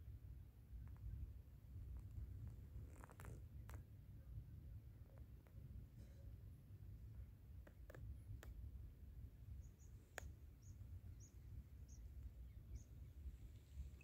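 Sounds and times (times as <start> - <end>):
faint low rumble: 0.0 - 14.0
small bird chirping: 9.5 - 14.0.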